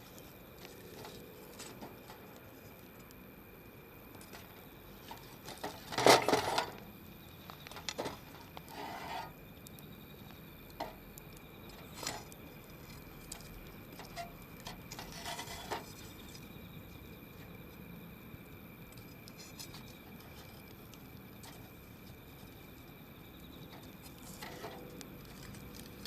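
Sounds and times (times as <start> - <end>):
campfire crackling: 0.0 - 26.0
cracks and knocks: 0.6 - 3.2, 4.1 - 9.3, 10.2 - 16.5.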